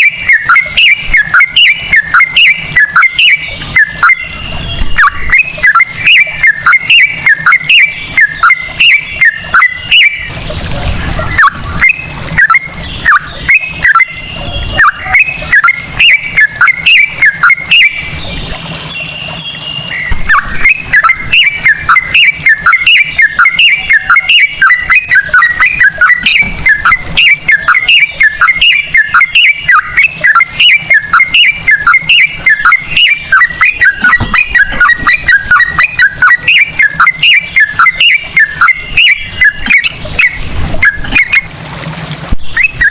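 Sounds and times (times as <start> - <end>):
bulbul singing chirping notes: 0.0 - 42.9.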